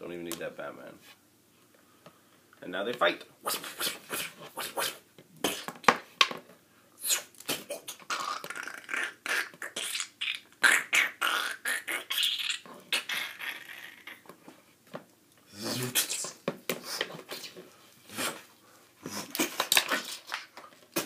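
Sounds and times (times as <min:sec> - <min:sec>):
person making fight sounds with mouth: 0:03.4 - 0:06.0, 0:07.0 - 0:14.4, 0:15.5 - 0:21.0.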